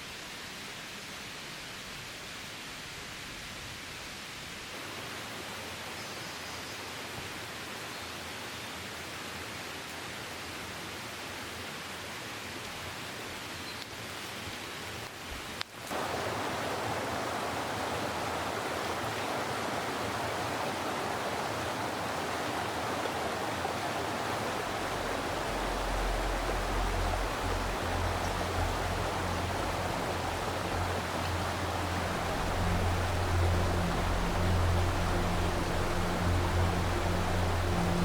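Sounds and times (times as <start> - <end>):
stream rushing: 8.7 - 38.0
soft background music: 17.5 - 38.0.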